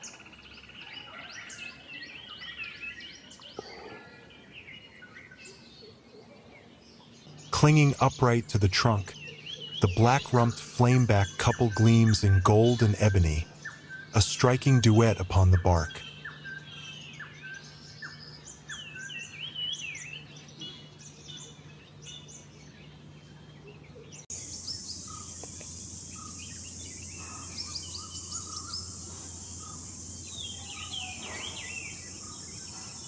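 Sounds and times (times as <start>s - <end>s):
birds chirping: 0.0s - 33.0s
high-pitched insect drone: 24.3s - 33.0s.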